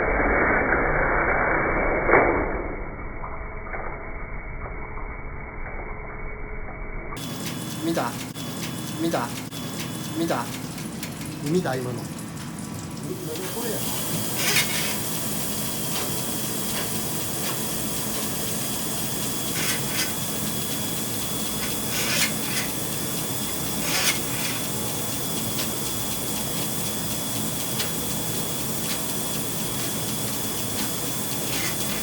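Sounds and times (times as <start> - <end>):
water rushing through drain: 9.0 - 32.0
rodder wire scraping: 14.1 - 15.0, 21.6 - 22.8, 23.7 - 24.6.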